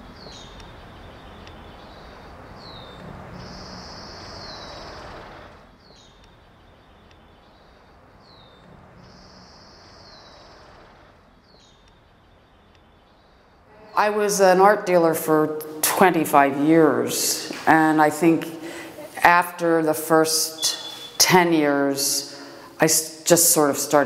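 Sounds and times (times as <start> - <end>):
small birds chirping: 0.0 - 13.6, 20.3 - 23.7
faint outdoor hiss: 0.0 - 24.0
bird trilling: 20.5 - 21.2.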